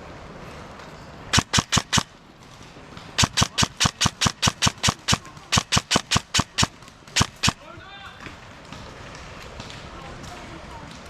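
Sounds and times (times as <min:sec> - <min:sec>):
airsoft gun shots: 0:01.3 - 0:02.2, 0:03.2 - 0:07.7.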